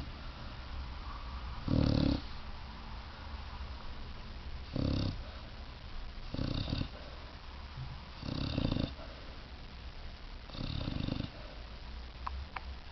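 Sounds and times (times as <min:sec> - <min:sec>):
puppy snoring: 0:01.6 - 0:02.4, 0:04.7 - 0:05.4, 0:06.2 - 0:07.1, 0:08.2 - 0:09.1, 0:10.5 - 0:11.5.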